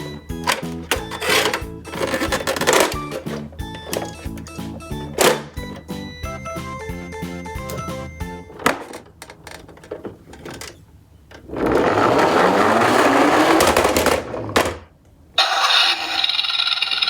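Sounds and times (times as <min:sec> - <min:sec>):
toy truck clicking: 0:00.1 - 0:04.6, 0:15.4 - 0:17.0
toy truck plastic whirr: 0:00.4 - 0:04.2, 0:11.4 - 0:14.8, 0:15.4 - 0:17.0.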